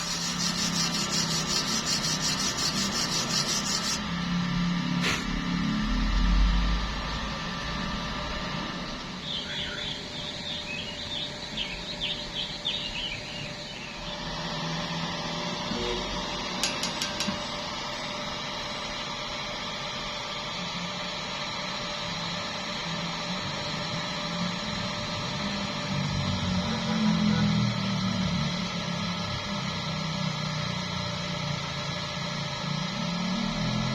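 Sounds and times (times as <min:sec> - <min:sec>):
welding arc hissing: 0:00.0 - 0:05.4.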